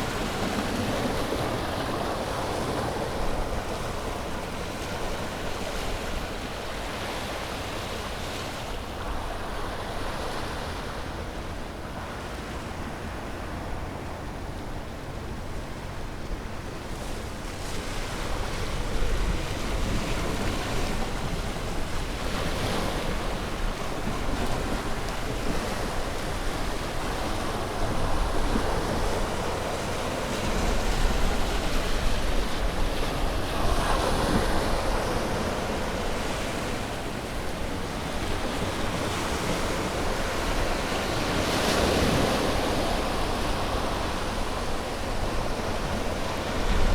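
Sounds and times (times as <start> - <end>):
ocean waves breaking on shore: 0.0 - 46.9.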